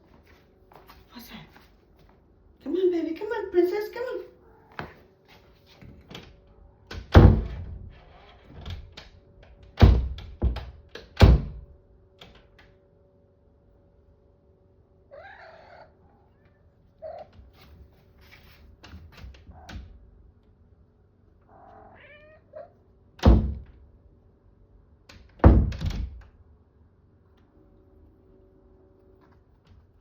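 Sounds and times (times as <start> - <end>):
cat meowing: 4.4 - 4.8, 15.1 - 17.4, 21.5 - 22.8
thumps on a door: 9.8 - 11.6, 23.2 - 23.7, 25.4 - 26.2.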